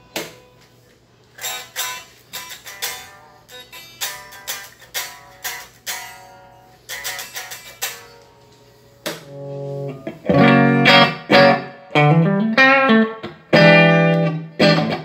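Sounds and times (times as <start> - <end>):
clean electric guitar: 0.0 - 15.0.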